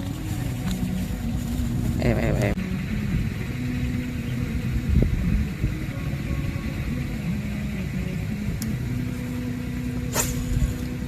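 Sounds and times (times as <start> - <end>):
engine humming: 0.0 - 11.0
sharp click: 10.1 - 10.6.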